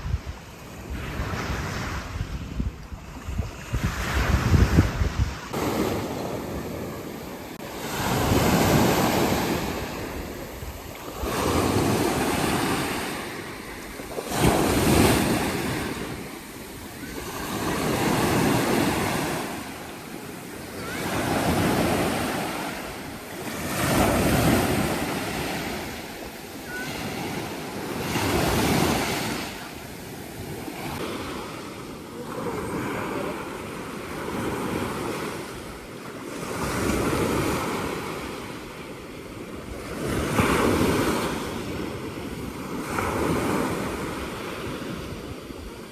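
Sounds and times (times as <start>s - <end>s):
sea waves washing in: 0.0s - 45.9s.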